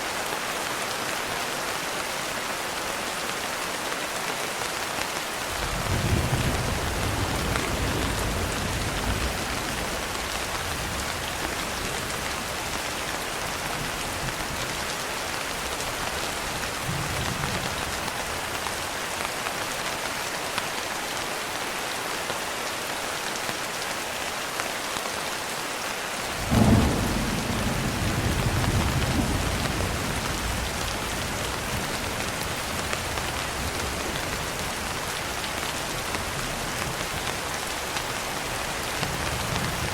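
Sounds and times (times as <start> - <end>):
steady rain: 0.0 - 39.9
thunder rumbling: 5.6 - 12.9, 26.4 - 35.0.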